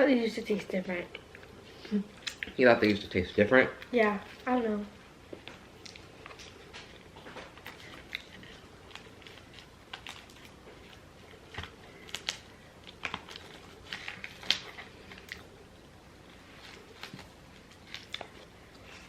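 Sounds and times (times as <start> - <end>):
chewing: 1.0 - 3.0, 5.3 - 15.6, 16.2 - 19.0.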